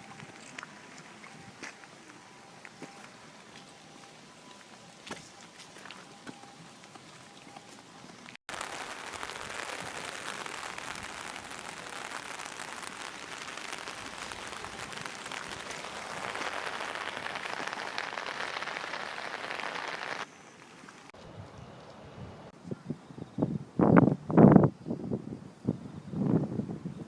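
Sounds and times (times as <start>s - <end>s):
heavy rain hissing: 8.5s - 21.1s.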